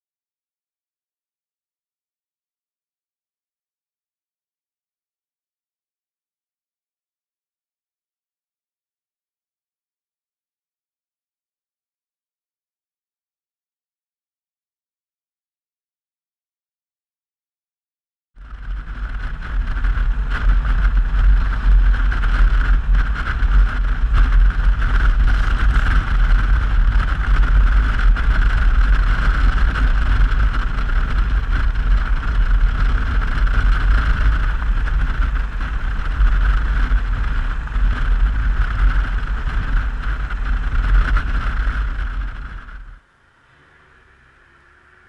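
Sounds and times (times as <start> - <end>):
wind buffeting on microphone: 18.4 - 43.0
motorcycle engine at speed: 18.4 - 45.0.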